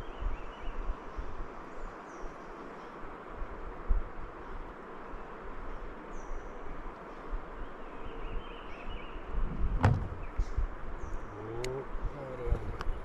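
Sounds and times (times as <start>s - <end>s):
faint bird calls: 10.0s - 13.0s.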